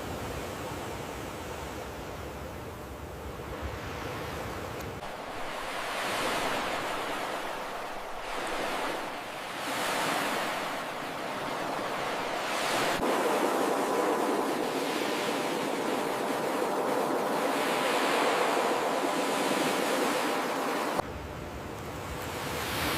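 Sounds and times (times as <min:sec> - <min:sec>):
ocean surf washing onto beach: 0:03.4 - 0:21.0.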